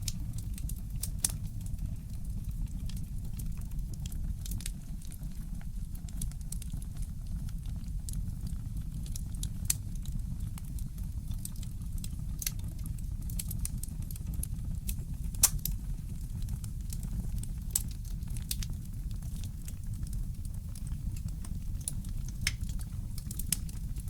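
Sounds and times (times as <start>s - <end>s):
wood fire crackling: 0.0s - 24.0s
sharp pops of fire: 14.9s - 24.0s.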